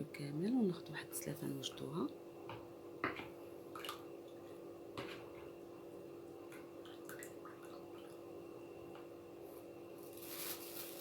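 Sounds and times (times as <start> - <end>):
liquid dripping: 6.5 - 8.3.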